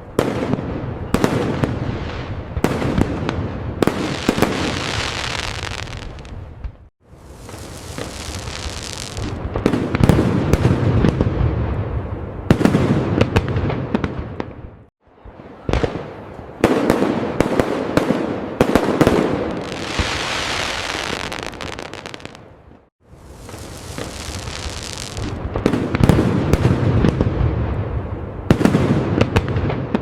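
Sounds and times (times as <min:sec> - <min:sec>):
fireworks booms with crackling: 0:00.1 - 0:30.0
long hissing crackle: 0:07.1 - 0:09.4, 0:23.1 - 0:25.4.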